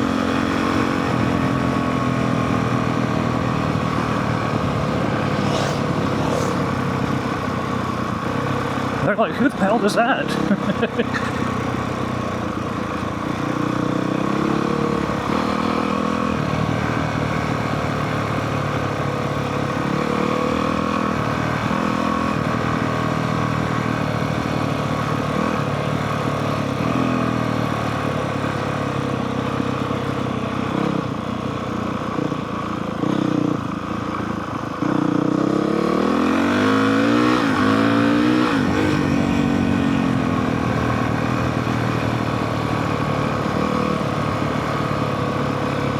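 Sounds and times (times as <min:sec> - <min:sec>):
dirt bike engine revving: 0:00.0 - 0:11.4, 0:13.5 - 0:17.6, 0:34.8 - 0:45.9.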